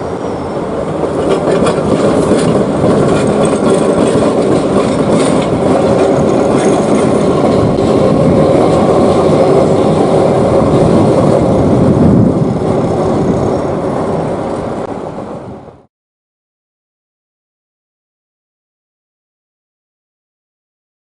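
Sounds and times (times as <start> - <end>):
train rumbling and rattling: 0.0 - 15.9.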